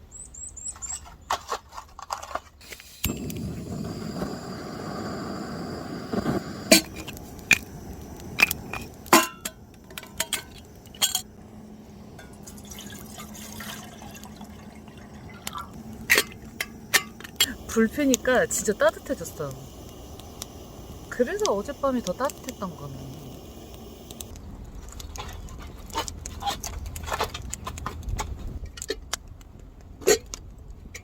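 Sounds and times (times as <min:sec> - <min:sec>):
wood popping and crackling: 0:01.3 - 0:11.4, 0:15.4 - 0:31.0
butane torch hissing: 0:02.6 - 0:24.4.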